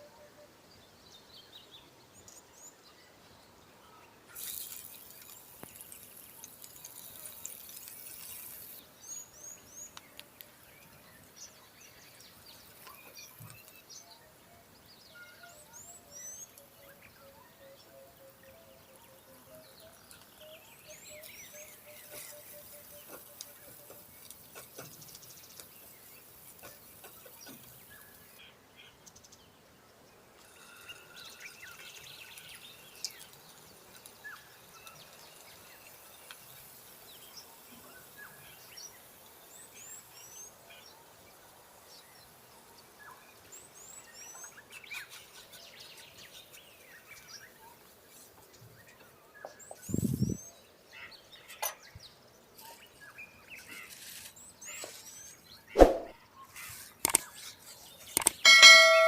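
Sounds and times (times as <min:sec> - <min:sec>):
small birds chirping: 0:00.0 - 0:59.0
light hiss: 0:04.3 - 0:14.1, 0:19.7 - 0:29.3, 0:30.3 - 0:59.0
small clicks and taps: 0:57.0 - 0:57.4, 0:58.1 - 0:58.4.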